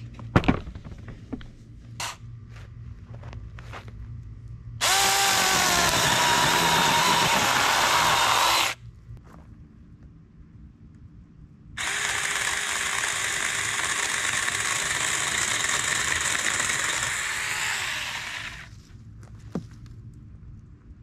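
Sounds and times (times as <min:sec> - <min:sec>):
power saw running: 0:04.8 - 0:08.8, 0:11.8 - 0:18.7.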